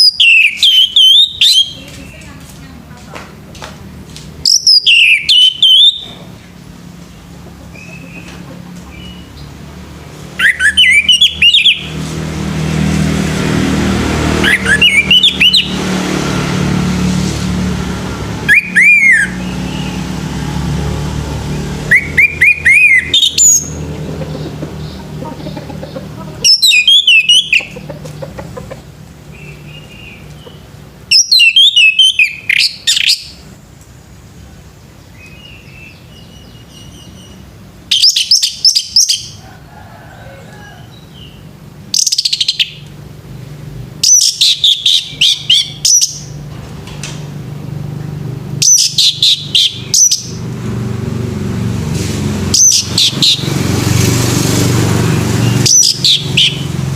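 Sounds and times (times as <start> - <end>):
thrush singing whistles: 0.0 - 1.8, 4.4 - 6.2, 10.4 - 12.0, 14.3 - 15.8, 18.4 - 20.1, 21.8 - 23.8, 26.5 - 27.8, 31.1 - 33.4, 35.2 - 39.4, 41.9 - 42.9, 44.0 - 46.4, 48.6 - 50.4, 52.5 - 53.6, 55.4 - 56.8.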